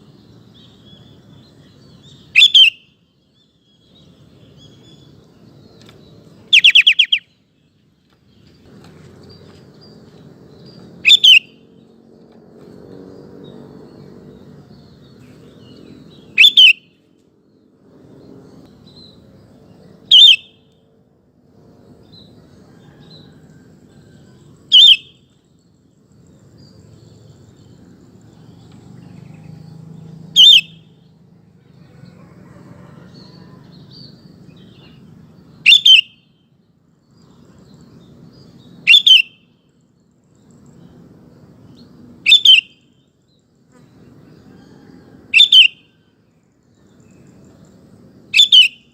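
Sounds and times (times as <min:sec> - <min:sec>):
bird wavering calls: 0:02.0 - 0:03.0, 0:06.5 - 0:07.4, 0:11.0 - 0:11.6, 0:16.1 - 0:17.0, 0:20.1 - 0:20.6, 0:24.2 - 0:25.2, 0:30.3 - 0:31.0, 0:35.6 - 0:36.2, 0:38.8 - 0:39.4, 0:42.2 - 0:42.9, 0:44.4 - 0:46.1, 0:48.3 - 0:48.9.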